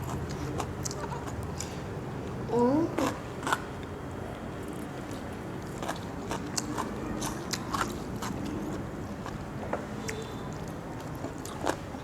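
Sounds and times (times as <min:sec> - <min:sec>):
low steady background noise: 0:00.0 - 0:12.0
person chewing food: 0:04.8 - 0:09.4, 0:10.1 - 0:11.8.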